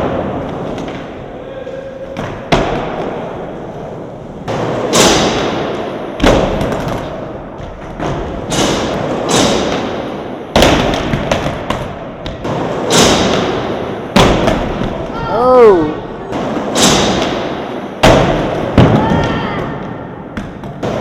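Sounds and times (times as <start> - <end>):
skateboard thuds and clacks: 4.4 - 15.0.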